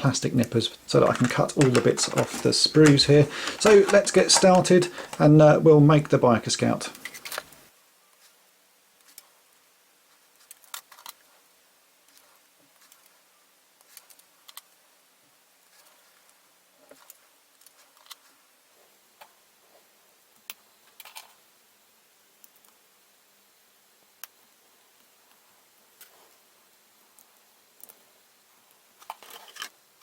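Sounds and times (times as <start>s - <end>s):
plastic nippers snipping sprues: 0.9s - 5.4s.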